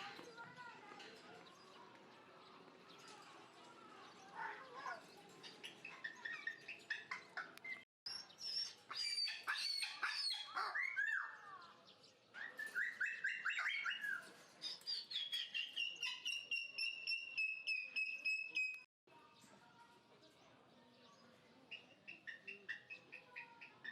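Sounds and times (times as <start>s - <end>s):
birds chirping and whistling: 5.0s - 18.8s.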